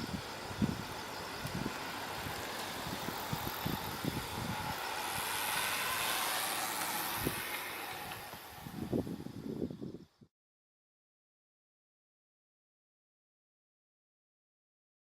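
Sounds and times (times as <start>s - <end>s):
vehicle hiss: 0.0s - 9.8s.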